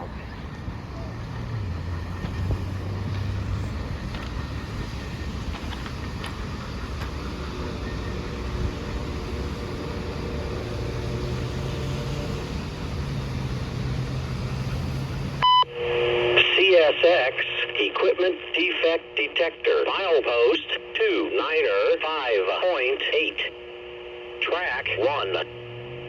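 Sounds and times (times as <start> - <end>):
freight train rolling on rails: 0.0 - 15.4
low hum: 0.0 - 16.5, 23.0 - 26.0.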